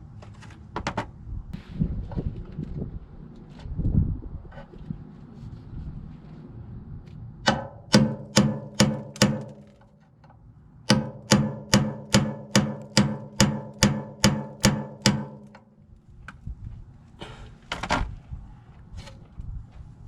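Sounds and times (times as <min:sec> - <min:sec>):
hammer striking metal: 0:07.5 - 0:09.8, 0:10.9 - 0:15.7.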